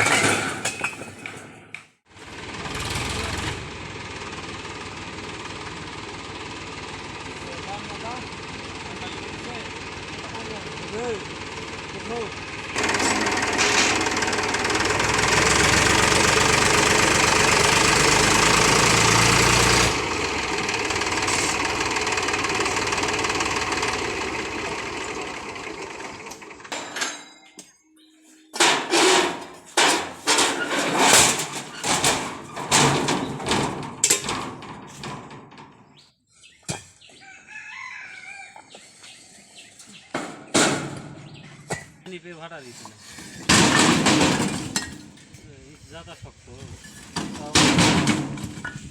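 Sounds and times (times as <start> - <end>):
tractor engine running loudly: 2.1 - 26.8.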